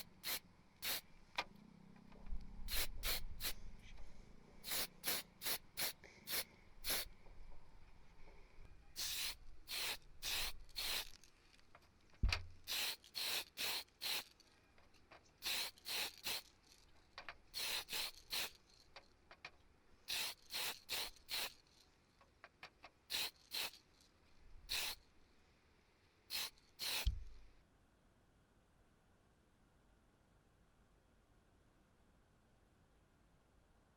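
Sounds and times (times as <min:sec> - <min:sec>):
aerosol spray can hissing: 0:00.0 - 0:01.0, 0:02.7 - 0:03.6, 0:04.6 - 0:07.1, 0:09.0 - 0:11.2, 0:12.6 - 0:14.4, 0:15.4 - 0:16.6, 0:17.6 - 0:18.6, 0:20.1 - 0:21.6, 0:23.1 - 0:23.8, 0:24.7 - 0:25.0, 0:26.3 - 0:27.3
low thump: 0:12.2 - 0:12.5.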